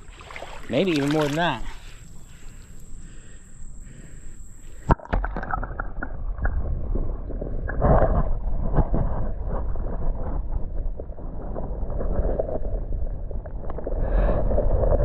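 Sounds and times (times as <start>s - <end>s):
splashing in shallow water: 0.0s - 8.4s
wind on microphone: 5.9s - 15.0s.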